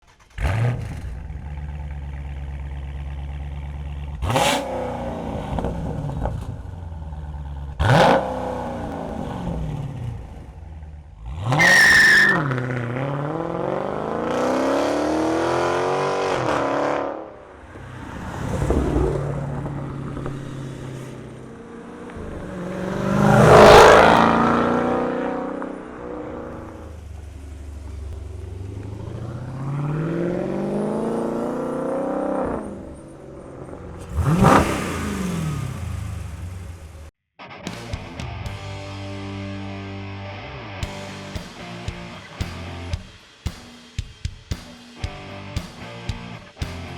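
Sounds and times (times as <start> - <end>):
car engine idling and revving: 0.0 - 37.2.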